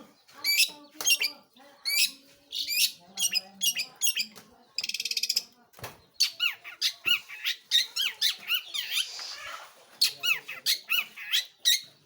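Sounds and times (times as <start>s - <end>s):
shrike singing squeaky chirps: 6.2s - 12.0s.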